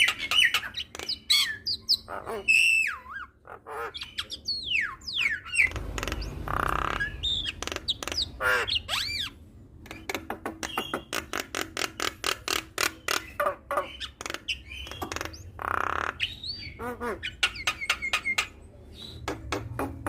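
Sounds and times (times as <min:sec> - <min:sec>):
bird whistling song: 0:04.0 - 0:11.3, 0:12.8 - 0:15.5, 0:16.2 - 0:19.3.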